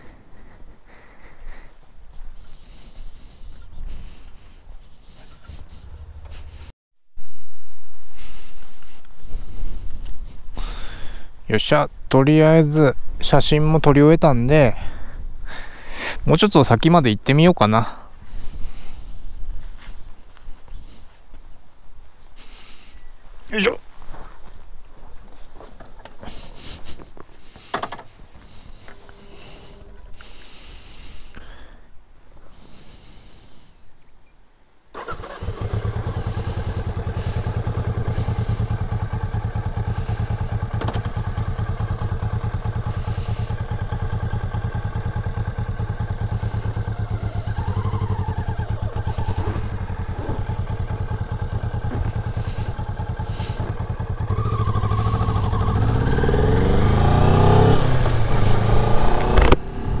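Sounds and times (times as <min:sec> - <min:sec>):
motorcycle engine starting and idling: 0:02.4 - 0:06.7, 0:25.8 - 0:31.8, 0:34.9 - 1:00.0
motorcycle revving and accelerating: 0:35.0 - 1:00.0.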